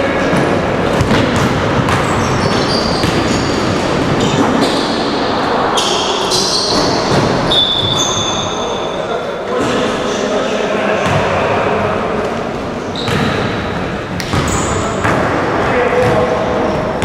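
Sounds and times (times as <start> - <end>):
echoing hall din: 0.0 - 17.0
ball bouncing: 0.9 - 3.4, 14.2 - 15.3
sneakers squeaking on floor: 1.0 - 5.2, 5.8 - 9.0, 12.8 - 15.1.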